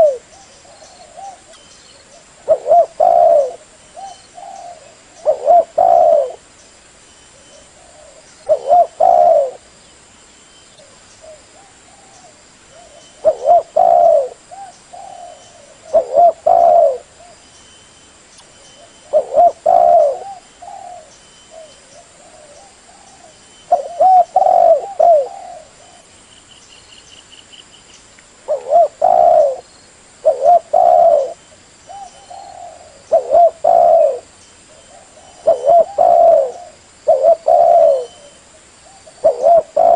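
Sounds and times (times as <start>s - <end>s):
dove cooing: 0.0s - 6.5s, 7.4s - 9.7s, 10.8s - 17.4s, 18.8s - 26.1s, 28.5s - 39.9s.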